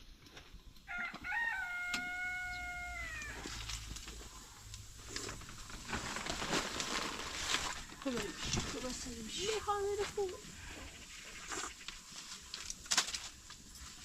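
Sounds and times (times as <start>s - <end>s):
rooster crowing: 0.9s - 3.6s.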